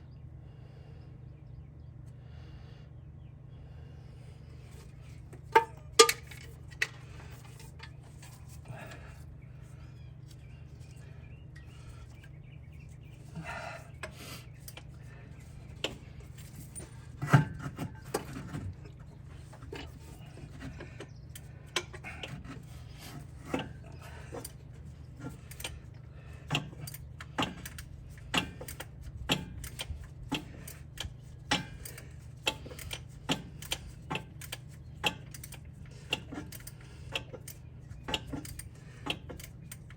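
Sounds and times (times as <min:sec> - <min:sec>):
steady low hum: 0:00.0 - 0:39.9
hand tools clicking on metal: 0:05.4 - 0:09.0, 0:25.2 - 0:25.8, 0:26.4 - 0:39.9.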